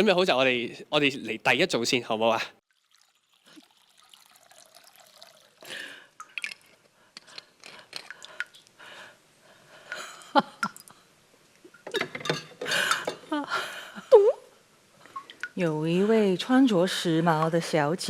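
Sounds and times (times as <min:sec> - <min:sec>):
small objects clicking and knocking: 0:06.2 - 0:08.7.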